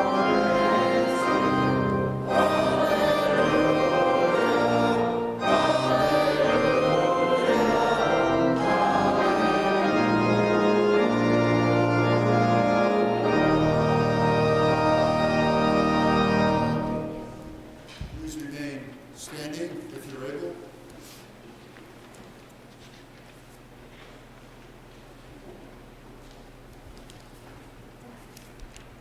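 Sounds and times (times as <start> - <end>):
voices singing a hymn: 0.0 - 17.8
organ playing: 0.0 - 17.9.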